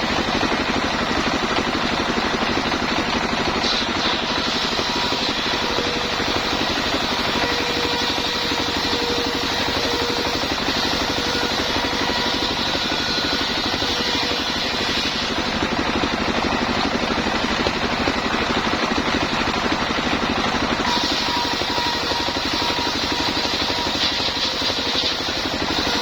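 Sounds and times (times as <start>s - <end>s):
high whine: 0.0s - 26.0s
sawmill engine running: 0.0s - 26.0s.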